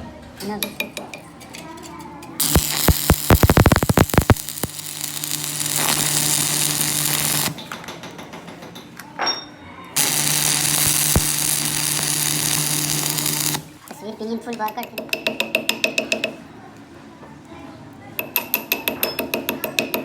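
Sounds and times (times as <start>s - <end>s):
arc welding crackling hiss: 2.4s - 7.6s, 10.0s - 13.8s
rapid sharp clicks: 2.4s - 7.6s.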